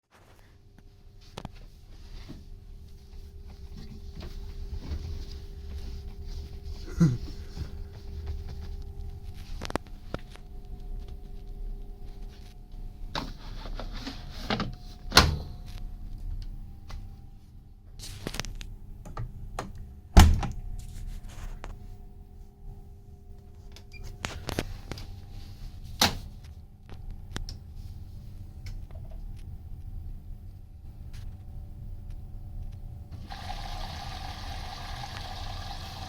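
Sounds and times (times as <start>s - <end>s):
washing machine motor hum: 33.1s - 36.0s.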